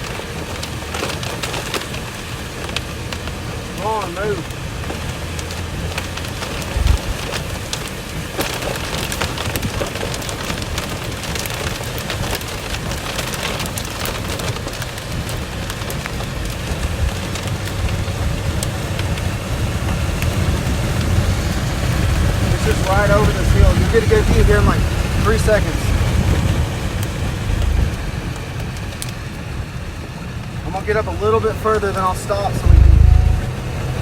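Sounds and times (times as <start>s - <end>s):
rain drops hitting vehicle: 0.0s - 34.0s
road and engine rumble: 0.0s - 34.0s
heavy knock: 32.6s - 33.7s.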